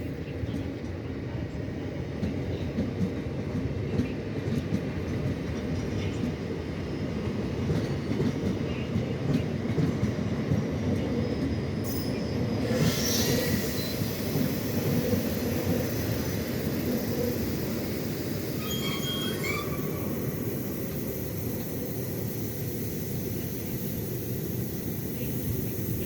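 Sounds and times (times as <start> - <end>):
train rumbling: 0.0 - 26.0
hiss: 12.7 - 26.0.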